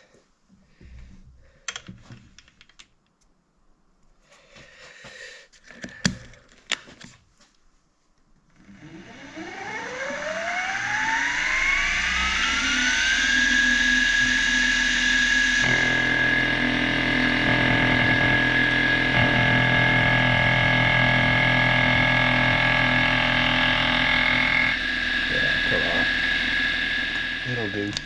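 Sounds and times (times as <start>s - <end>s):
milling machine motor whine: 8.5s - 28.0s.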